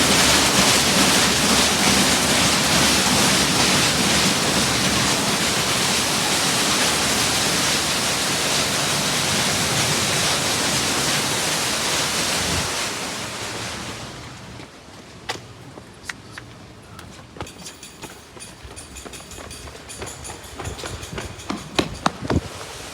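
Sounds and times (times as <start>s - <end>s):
water spraying onto car: 0.0s - 14.6s.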